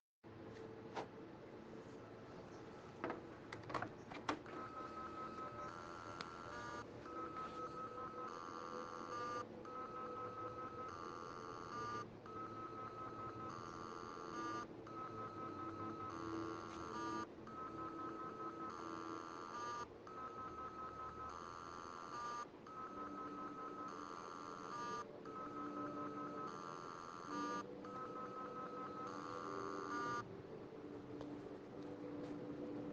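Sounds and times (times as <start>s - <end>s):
hard drive clicks: 3.0s - 9.8s
hard drive electronic tone: 4.5s - 31.2s.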